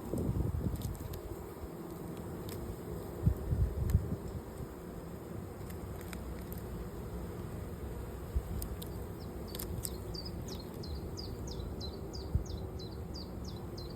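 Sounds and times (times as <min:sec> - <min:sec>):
bees buzzing: 0:00.0 - 0:13.9
bird chirping: 0:09.2 - 0:13.9.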